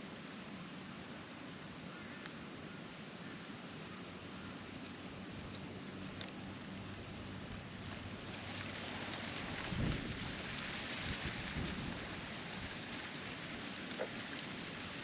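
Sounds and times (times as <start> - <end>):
wind hissing through foliage: 0.0 - 15.0
wind buffeting microphone: 9.5 - 12.2.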